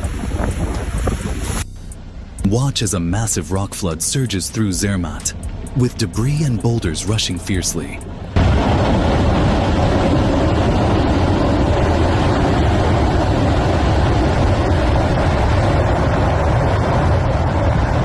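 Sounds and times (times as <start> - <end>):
deep rumble of boulders: 0.0 - 2.5, 8.0 - 18.0
debris flow rushing roar: 0.0 - 18.0.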